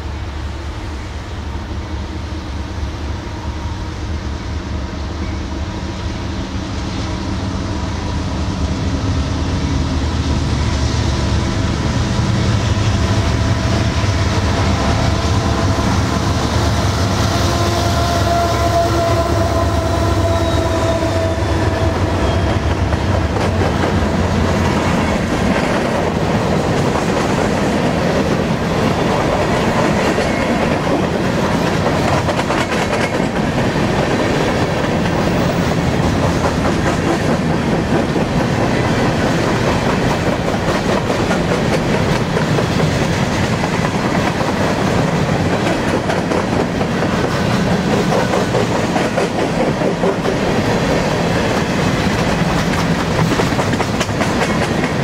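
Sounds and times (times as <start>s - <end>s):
diesel locomotive engines: 0.0s - 55.0s
clickety-clack of wheels on rail joints: 10.1s - 55.0s.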